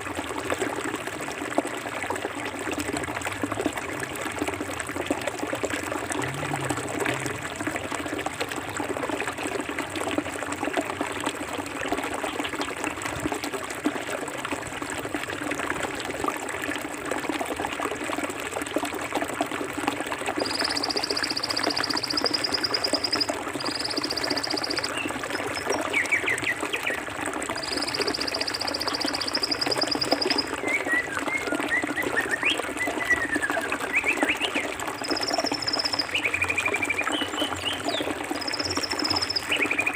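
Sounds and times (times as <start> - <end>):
stream water flowing: 0.0 - 39.9
short chirping calls: 20.4 - 25.8, 35.0 - 36.3, 38.4 - 39.9.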